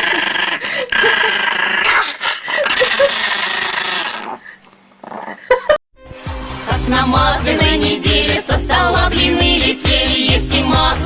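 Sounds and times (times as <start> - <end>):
dog growling and yipping: 0.0 - 5.6.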